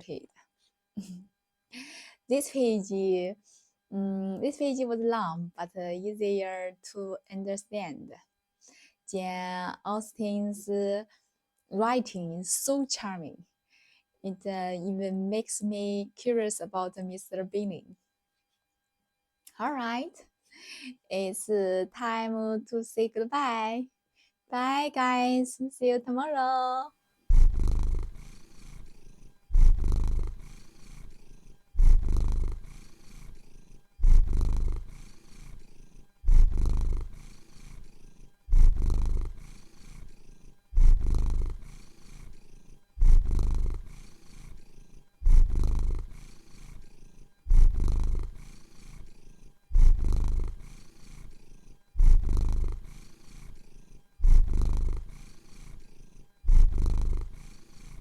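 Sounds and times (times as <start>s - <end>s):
cat purring: 26.2s - 58.0s.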